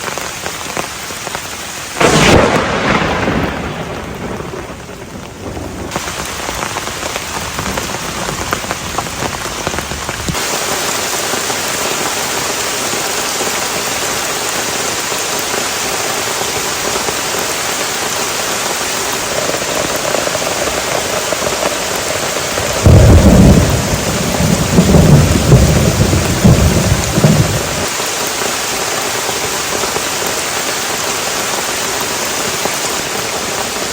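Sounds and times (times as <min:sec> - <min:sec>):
heavy rain: 0:00.0 - 0:33.9
sharp thunder clap: 0:02.0 - 0:06.7, 0:19.6 - 0:27.9
low rumble of thunder: 0:02.0 - 0:10.3, 0:19.5 - 0:27.9.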